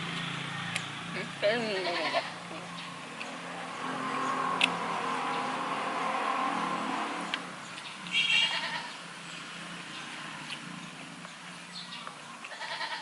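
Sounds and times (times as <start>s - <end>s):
goats bleating hoarsely: 1.6s - 2.4s, 8.3s - 8.9s, 12.5s - 13.0s.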